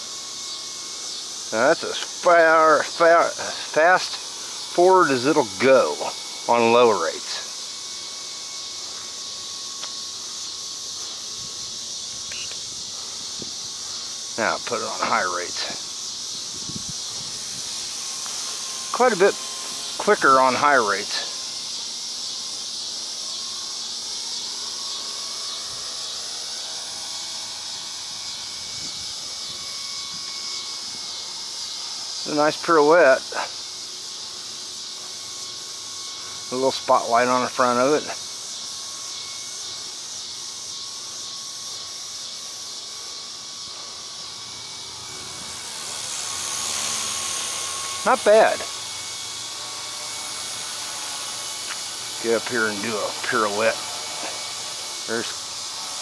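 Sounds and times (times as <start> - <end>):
electric motor whine: 0.0 - 56.0
rotor blades hissing: 0.0 - 56.0.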